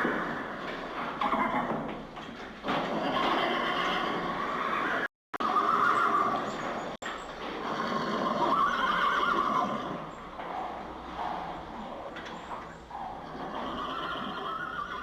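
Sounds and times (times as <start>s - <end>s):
horses whinnying: 1.2s - 1.9s, 2.6s - 6.6s, 7.5s - 15.0s.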